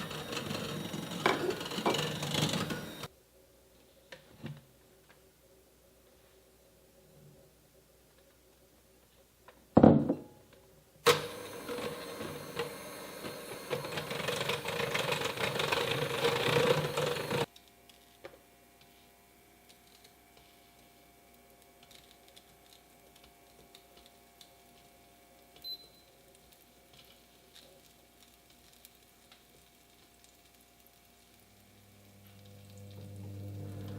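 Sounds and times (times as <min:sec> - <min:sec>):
blender motor whirring: 0:00.0 - 0:03.1, 0:11.1 - 0:17.5, 0:32.8 - 0:33.9.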